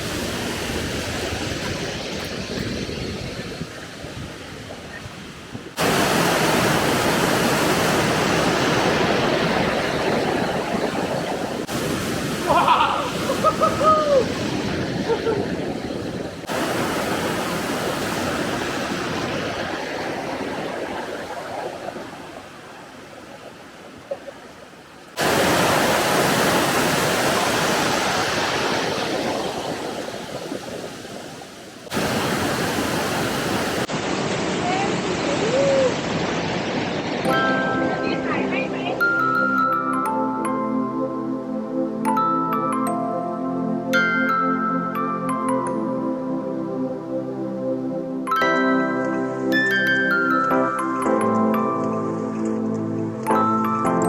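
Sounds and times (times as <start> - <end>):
waterfall rushing: 5.7 - 23.7, 24.6 - 39.6.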